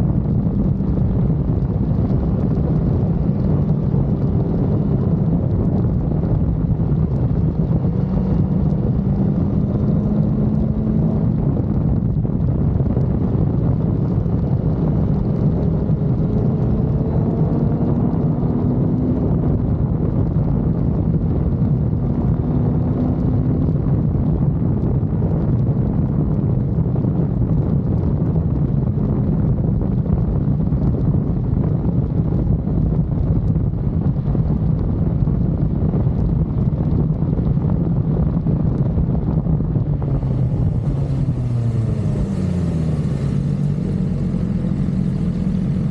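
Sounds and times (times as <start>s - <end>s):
wind rushing over microphone: 0.0s - 45.9s
motorcycle engine revving: 39.9s - 45.9s.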